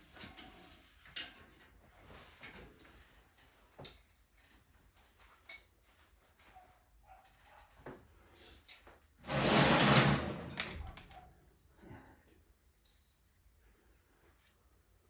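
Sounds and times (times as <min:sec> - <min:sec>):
metallic clinks of tools: 0:03.7 - 0:04.7.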